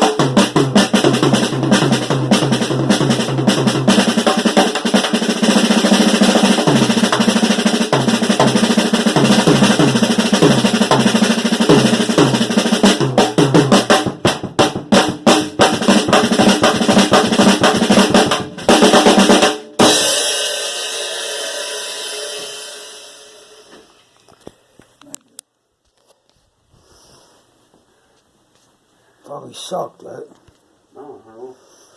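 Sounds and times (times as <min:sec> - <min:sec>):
drum hits around the kit: 0:00.0 - 0:23.7
snare drum roll: 0:00.0 - 0:23.7
crash cymbal ringing: 0:19.9 - 0:23.7.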